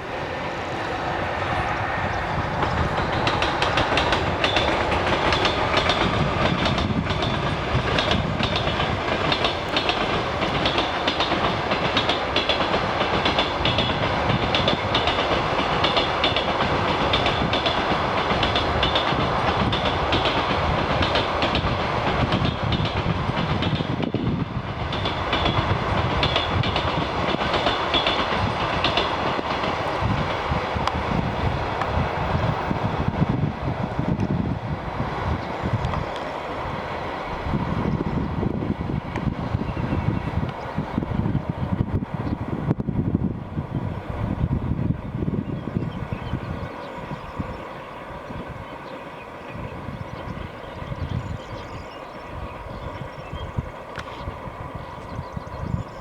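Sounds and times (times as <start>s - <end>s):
train wheels clattering over rails: 0.7s - 41.4s.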